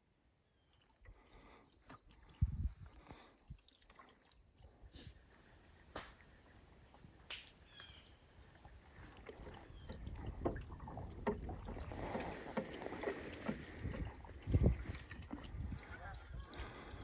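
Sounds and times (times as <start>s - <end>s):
paddle splashing and knocking: 5.9s - 17.0s.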